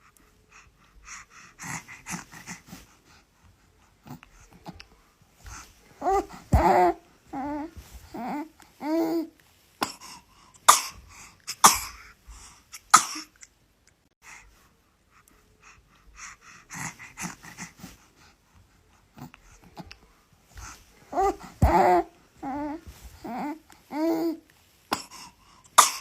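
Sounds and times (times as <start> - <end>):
baby cooing: 6.0 - 9.3, 21.1 - 24.4.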